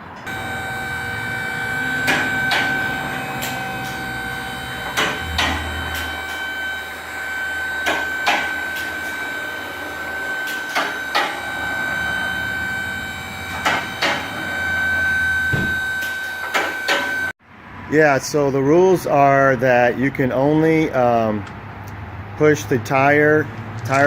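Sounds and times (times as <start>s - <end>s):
machine whining and humming: 0.0s - 17.4s.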